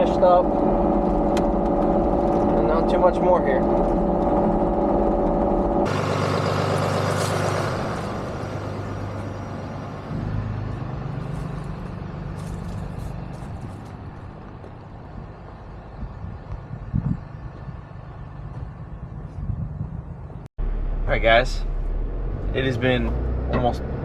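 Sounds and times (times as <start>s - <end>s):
diesel engines running: 0.0s - 24.0s.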